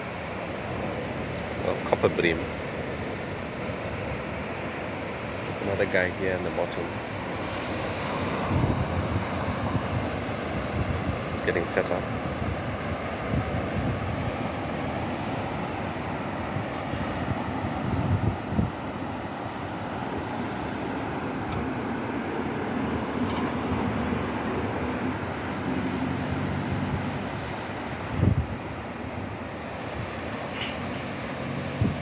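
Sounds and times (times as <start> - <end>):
low engine hum: 6.8 - 32.0
wind buffeting microphone: 7.2 - 32.0.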